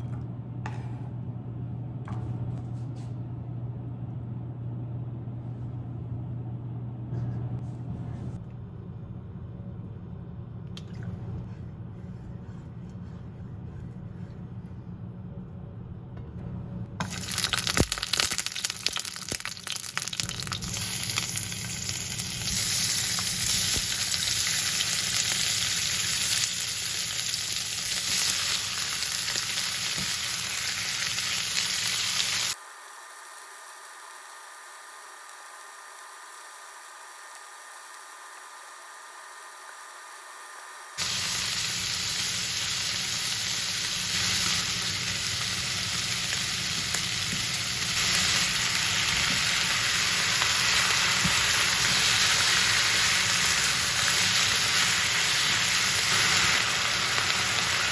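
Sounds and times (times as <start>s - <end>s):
food sizzling in a pan: 17.0s - 57.9s.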